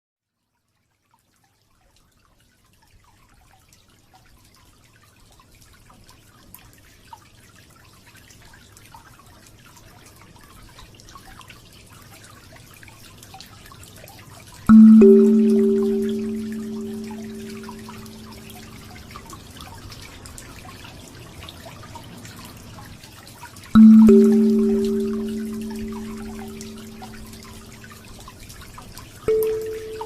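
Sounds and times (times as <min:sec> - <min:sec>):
water fountain trickling: 0:14.7 - 0:30.0.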